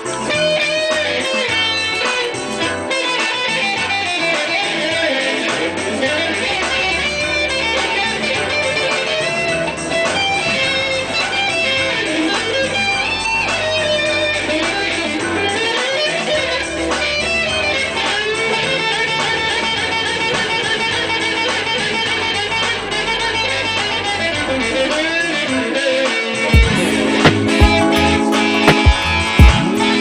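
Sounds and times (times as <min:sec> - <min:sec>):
electric guitar melody: 0:00.0 - 0:30.0
bass line: 0:05.8 - 0:25.0, 0:26.6 - 0:30.0.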